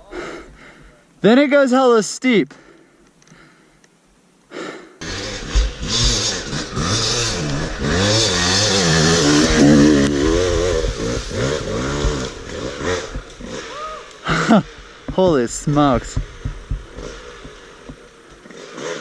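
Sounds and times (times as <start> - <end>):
dirt bike engine revving: 5.0 - 19.0.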